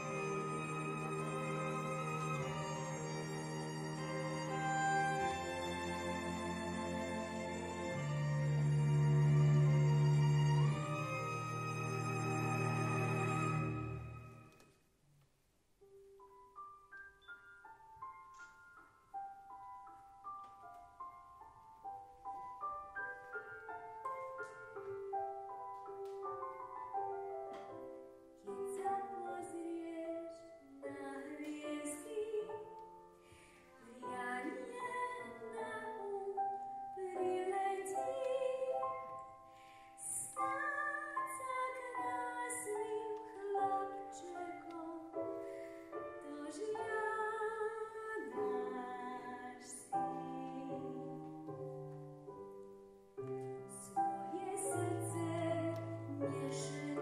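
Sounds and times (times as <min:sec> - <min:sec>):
piano: 0:00.0 - 0:57.0
woman singing operatically: 0:33.8 - 0:36.4, 0:40.1 - 0:45.1, 0:46.2 - 0:51.3, 0:54.3 - 0:57.0.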